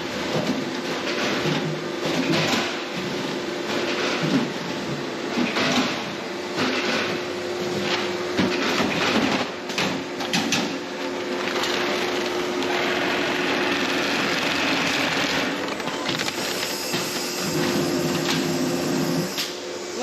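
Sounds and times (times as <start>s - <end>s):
machinery hum: 1.7s - 20.0s
bag-closing sewing machine: 11.6s - 19.3s.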